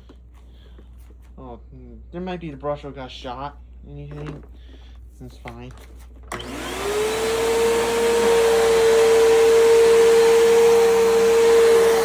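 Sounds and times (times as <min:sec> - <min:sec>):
vacuum cleaner motor whining: 0:06.3 - 0:12.0.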